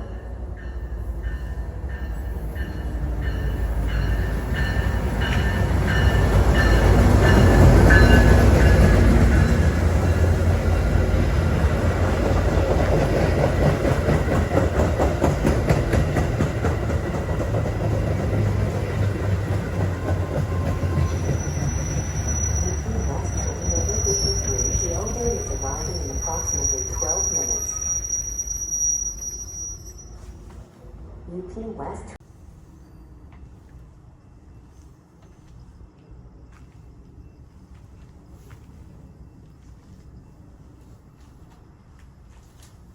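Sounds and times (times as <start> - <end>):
train wheels clacking on rails: 0.6 - 27.5
thin high squeal: 21.1 - 30.5.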